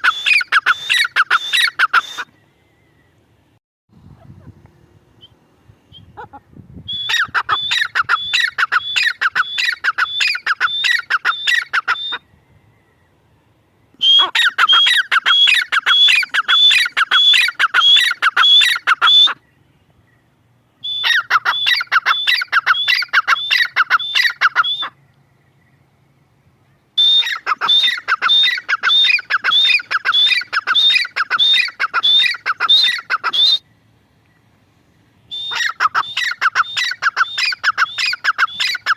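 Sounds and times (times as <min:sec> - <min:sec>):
francolin shrill calls: 0:00.0 - 0:03.2, 0:05.2 - 0:12.4, 0:14.0 - 0:19.6, 0:20.8 - 0:25.0, 0:27.0 - 0:33.7, 0:35.2 - 0:38.9.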